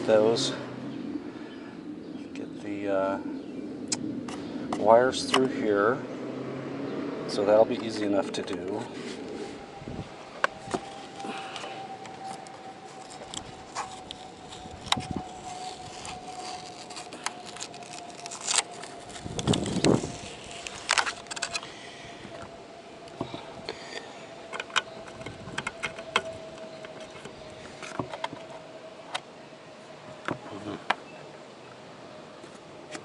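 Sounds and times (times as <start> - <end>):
faint steady tone: 7.0 - 33.0
cables and fittings rattling: 24.4 - 28.6.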